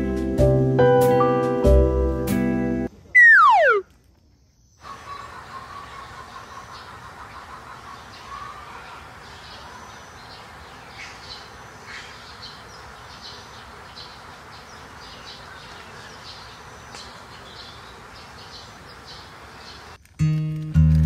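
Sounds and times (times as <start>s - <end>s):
bird whistles: 3.2s - 3.8s
small birds chirping: 3.2s - 20.0s.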